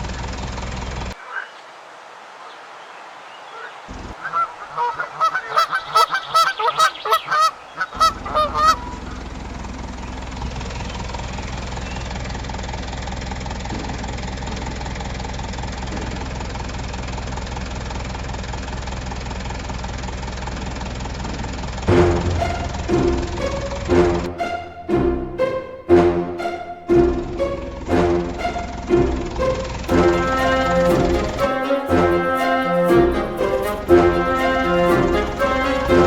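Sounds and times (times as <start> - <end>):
goose-like honking calls: 4.2 - 9.2, 28.0 - 36.0
low motor hum: 8.0 - 36.0.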